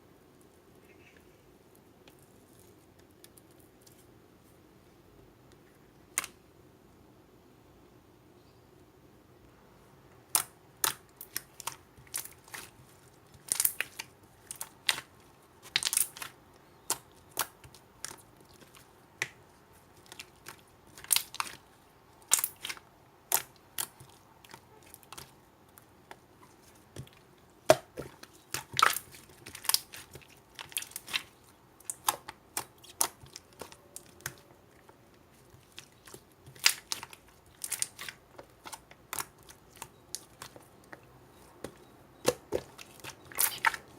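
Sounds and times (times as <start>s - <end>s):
slime squeezed by hand: 43.3s - 43.9s.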